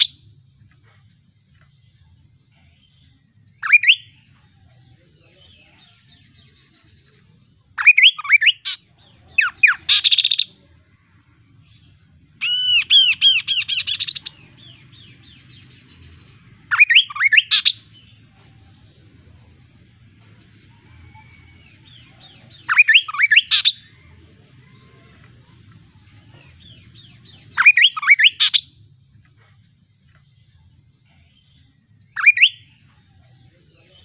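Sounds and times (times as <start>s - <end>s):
bird singing whistled notes: 2.6s - 7.2s, 7.8s - 10.7s, 11.6s - 19.6s, 20.7s - 25.1s, 26.3s - 28.8s, 31.2s - 34.0s.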